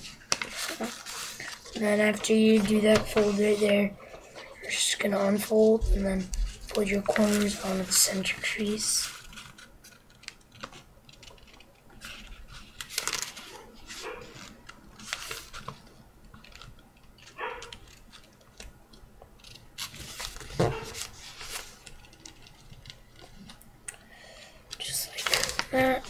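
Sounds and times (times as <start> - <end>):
paper rustling and crackling: 0.0 - 23.6, 24.7 - 26.0.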